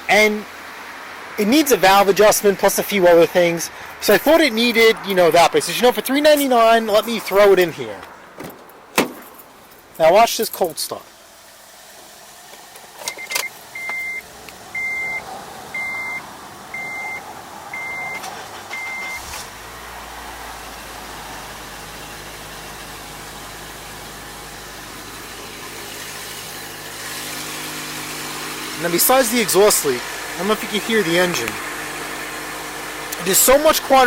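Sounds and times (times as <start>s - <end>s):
car engine starting and idling: 0.0s - 34.0s
car chime beeps: 13.1s - 14.2s, 14.8s - 15.2s, 15.8s - 17.2s, 17.8s - 19.2s.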